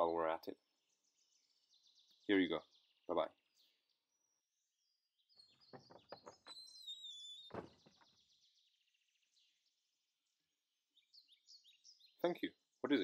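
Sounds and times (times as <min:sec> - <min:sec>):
faint birdsong: 0:00.0 - 0:13.0
soft knocks: 0:05.7 - 0:06.5
thump: 0:07.5 - 0:08.2.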